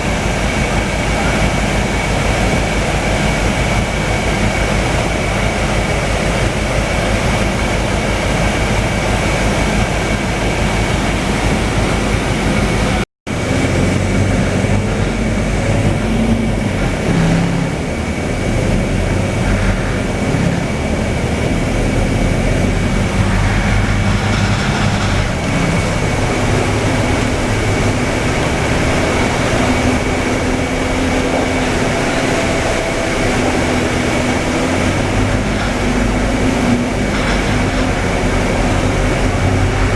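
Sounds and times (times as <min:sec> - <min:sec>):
bus engine: 0:00.0 - 0:39.9
road noise: 0:00.0 - 0:39.9
steady high whine: 0:00.0 - 0:39.9.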